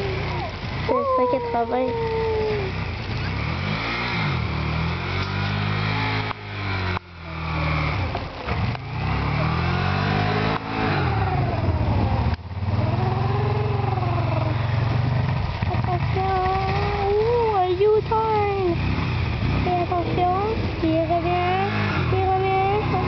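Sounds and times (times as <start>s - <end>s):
engine accelerating hard: 0.0s - 23.0s.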